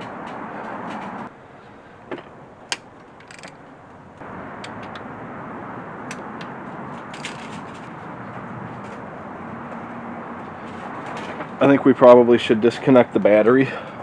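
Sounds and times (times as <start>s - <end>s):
hand tools clinking on metal: 2.7s - 3.7s.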